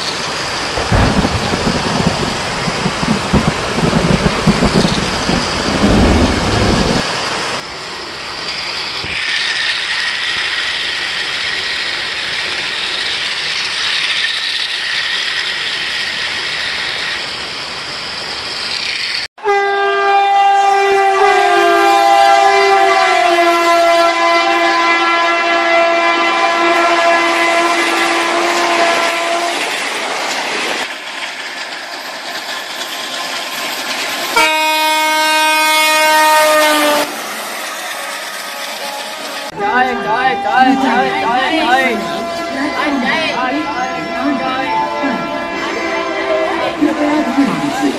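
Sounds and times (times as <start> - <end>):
toy train running on track: 8.2 - 19.3.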